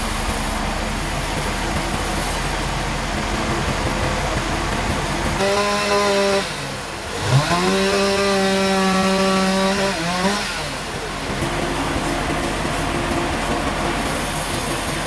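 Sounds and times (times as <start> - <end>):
saw cutting wood: 0.0 - 3.0, 5.3 - 12.6
mill machinery noise: 0.0 - 15.0.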